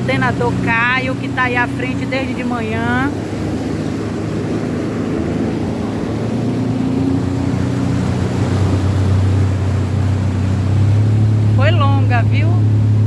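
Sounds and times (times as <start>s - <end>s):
jet ski engine droning: 0.0s - 13.0s.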